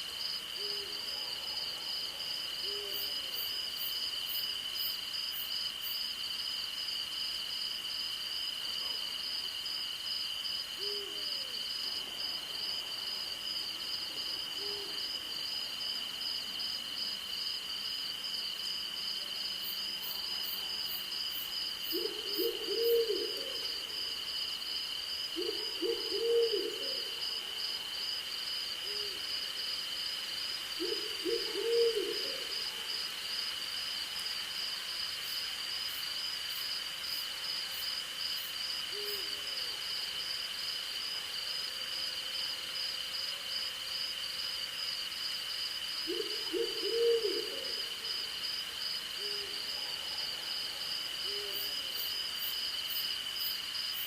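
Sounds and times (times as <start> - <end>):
owl hooting: 21.9 - 23.7, 25.4 - 27.1, 30.8 - 32.5, 46.1 - 47.8.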